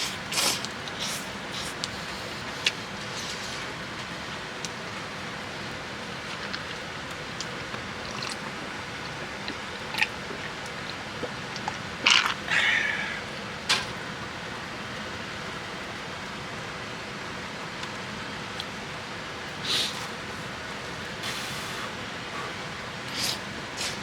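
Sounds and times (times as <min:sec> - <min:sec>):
rain hiss: 0:19.5 - 0:24.0.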